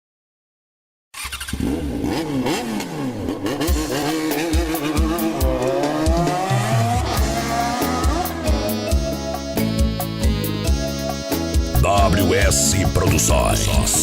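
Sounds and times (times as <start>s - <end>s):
engine revving: 1.2s - 10.8s.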